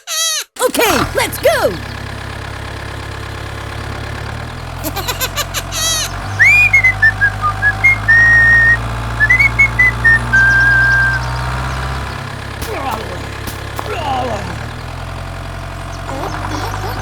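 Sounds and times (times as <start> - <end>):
small tractor engine running: 0.6 - 17.0
whistled tune: 6.3 - 11.5
clicks: 12.6 - 14.8.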